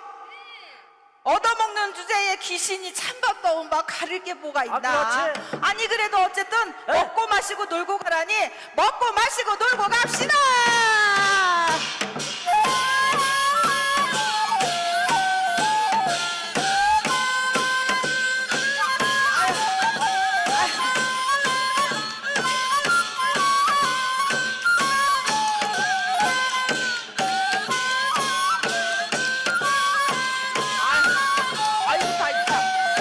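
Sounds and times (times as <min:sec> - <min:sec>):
steady drum strokes: 0:10.7 - 0:33.0
wind instrument melody: 0:12.4 - 0:33.0.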